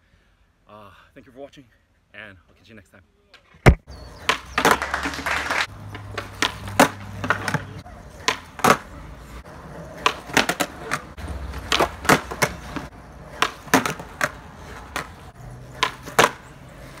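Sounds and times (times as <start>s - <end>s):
skateboard clacks: 3.6s - 9.0s, 9.8s - 17.0s
skateboard wheels rolling: 3.8s - 17.0s.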